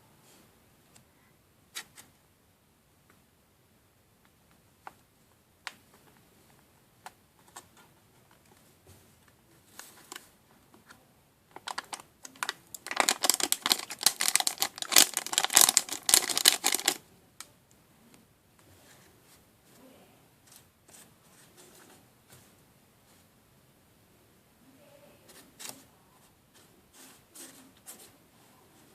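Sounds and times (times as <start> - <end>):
plastic packaging clicks and crinkling: 9.7 - 17.0.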